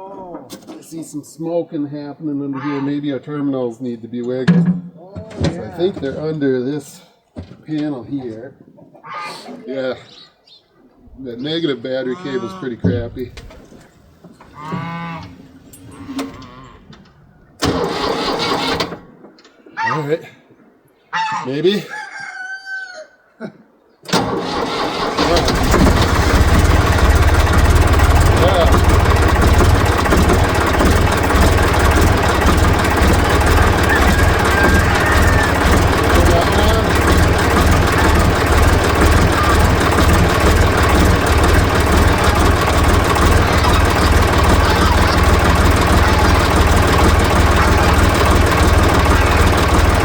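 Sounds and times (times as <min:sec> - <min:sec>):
diesel engine starting and running: 0:17.6 - 0:19.1, 0:24.1 - 0:50.0.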